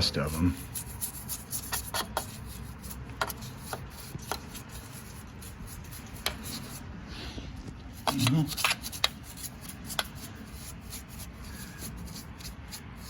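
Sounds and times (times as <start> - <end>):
rubbing of metal parts: 7.9 - 13.0.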